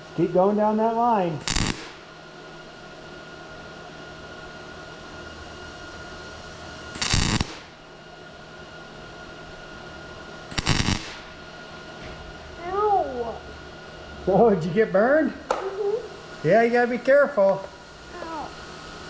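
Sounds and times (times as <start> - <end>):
welder hum: 0.0 - 19.0
welding arc bursts: 1.4 - 2.1, 6.9 - 7.8, 10.5 - 11.4.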